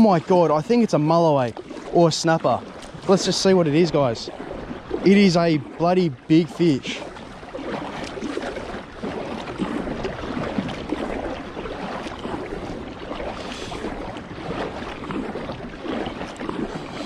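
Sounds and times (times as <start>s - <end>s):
water lapping and splashing: 0.0s - 17.0s
wind rumbling on microphone: 2.6s - 17.0s.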